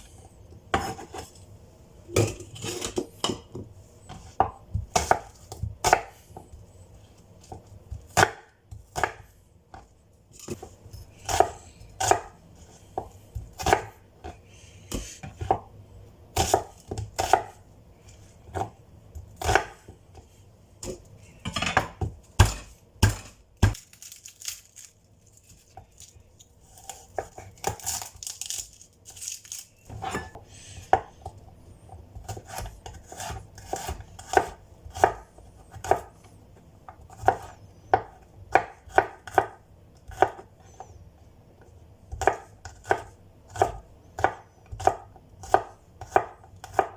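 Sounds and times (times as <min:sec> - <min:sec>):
knife chopping on cutting board: 0:00.7 - 0:01.3, 0:02.1 - 0:06.5, 0:07.4 - 0:12.4, 0:13.0 - 0:15.7, 0:16.3 - 0:17.6, 0:18.5 - 0:20.2, 0:20.8 - 0:23.8, 0:32.2 - 0:36.1, 0:36.9 - 0:40.4, 0:42.1 - 0:46.9.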